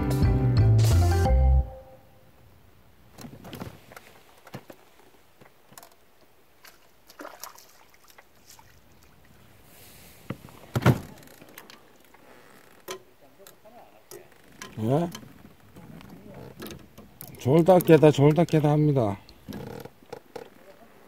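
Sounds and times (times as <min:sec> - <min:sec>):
background music: 0:00.0 - 0:02.1
faint knocks and rustles: 0:03.1 - 0:07.0, 0:10.2 - 0:21.0.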